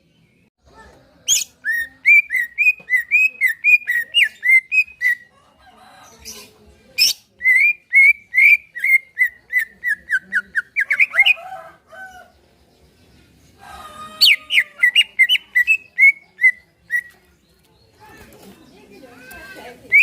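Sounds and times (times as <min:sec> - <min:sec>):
bird singing whistled notes: 0:01.3 - 0:05.3, 0:07.0 - 0:11.2, 0:14.3 - 0:17.2.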